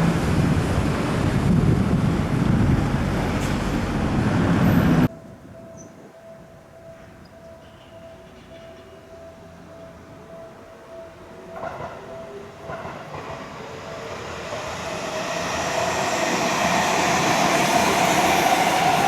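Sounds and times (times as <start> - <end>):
train rumble and wheel noise: 0.0 - 19.0
level-crossing warning bell: 5.1 - 19.0.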